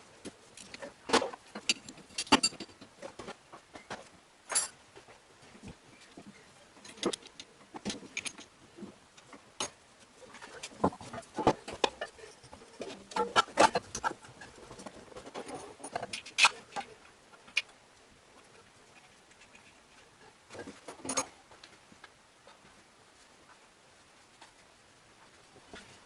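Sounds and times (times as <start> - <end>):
clicks and knocks of metal parts: 0.2 - 17.8, 19.0 - 21.8.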